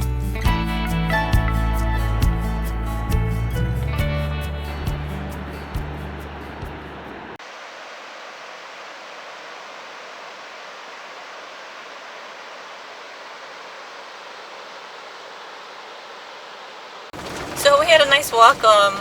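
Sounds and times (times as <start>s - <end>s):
waterfall roaring: 4.7s - 19.0s.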